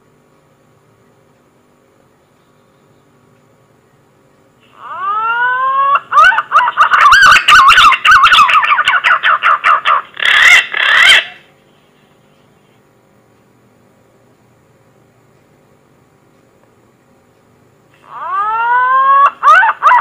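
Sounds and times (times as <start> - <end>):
pigeon whistling call: 4.8 - 11.4.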